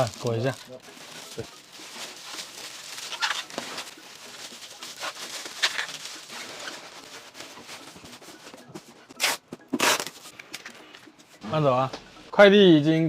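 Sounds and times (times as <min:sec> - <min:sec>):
plastic packing crinkling: 0:00.0 - 0:08.6.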